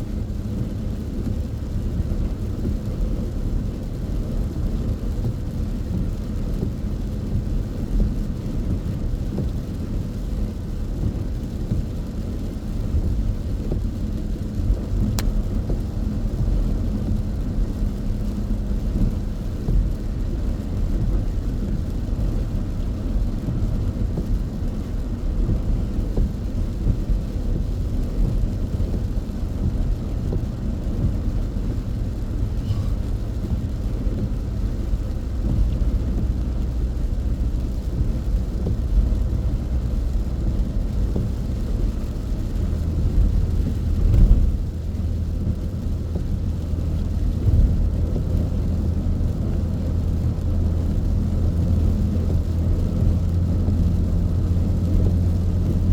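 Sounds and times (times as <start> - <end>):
car road and engine rumble: 0.0 - 55.9
heavy rain: 0.0 - 55.9.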